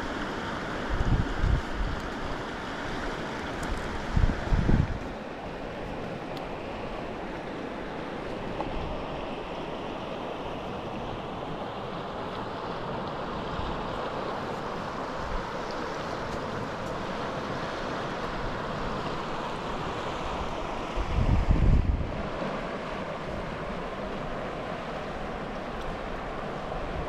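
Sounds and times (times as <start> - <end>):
river water rushing: 0.0 - 27.0
wind buffeting microphone: 0.9 - 2.2, 3.7 - 5.2, 14.6 - 24.5.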